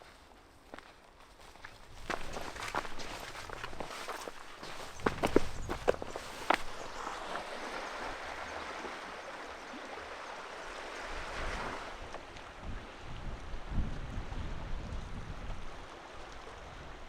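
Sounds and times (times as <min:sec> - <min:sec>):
sea waves washing in: 0:06.8 - 0:13.0.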